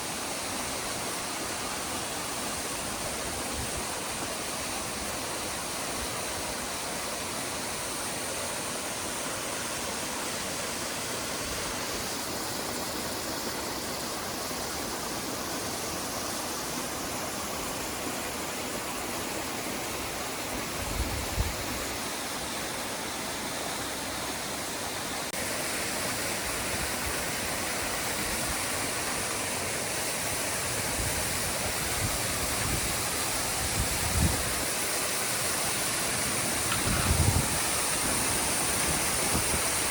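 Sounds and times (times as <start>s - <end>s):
water rushing over rocks: 22.2s - 39.9s.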